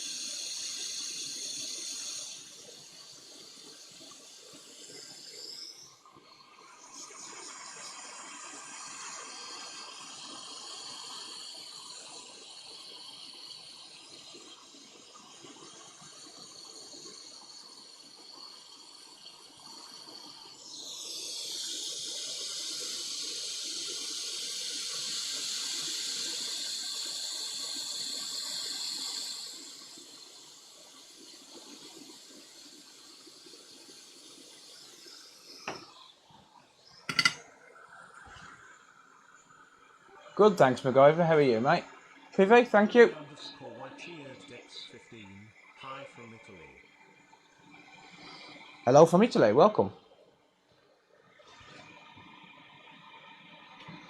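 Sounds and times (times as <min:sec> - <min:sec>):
faint hiss with high tones: 0:00.0 - 0:54.0.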